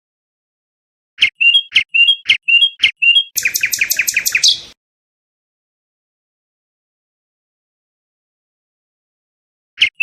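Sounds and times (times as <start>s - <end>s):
songbird singing: 1.2s - 4.8s, 9.8s - 10.0s.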